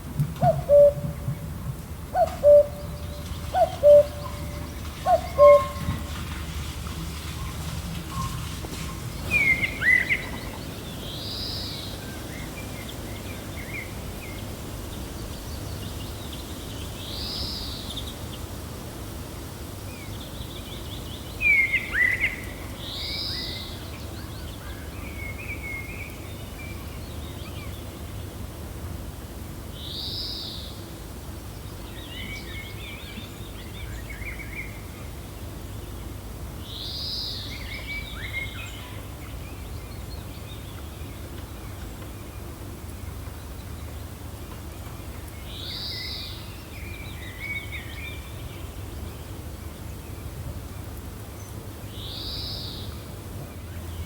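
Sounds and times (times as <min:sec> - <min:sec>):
gentle wind blowing: 0:00.0 - 0:54.0
birds chirping: 0:00.4 - 0:11.6.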